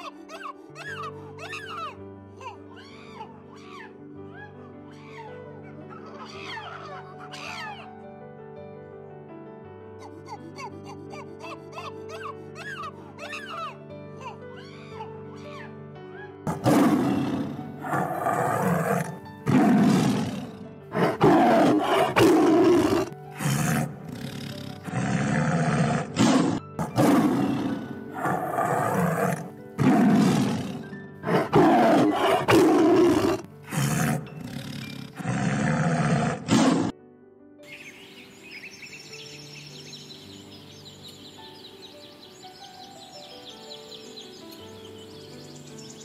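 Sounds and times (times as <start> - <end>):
background music: 0.0 - 46.0
large animal roaring: 16.5 - 36.9.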